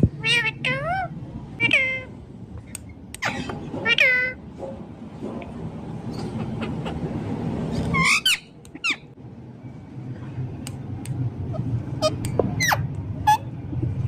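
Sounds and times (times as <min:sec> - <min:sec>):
parrot squawking: 0:00.2 - 0:02.1, 0:07.9 - 0:09.1, 0:11.5 - 0:13.5.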